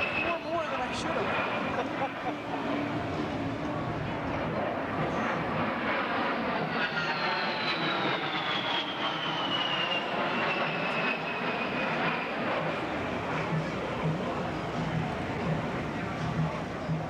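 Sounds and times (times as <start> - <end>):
airplane flying past: 0.0 - 17.0
high engine whine falling in pitch: 6.7 - 14.6.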